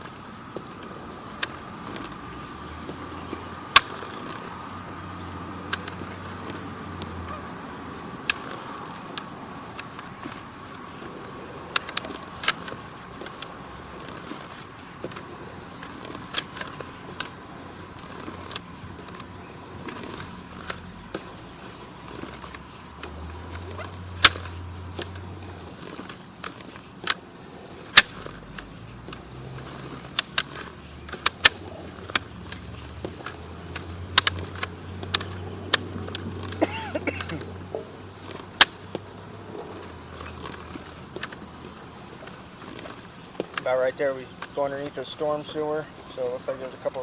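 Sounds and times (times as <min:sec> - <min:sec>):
cable clicks and knocks: 0:00.0 - 0:47.0.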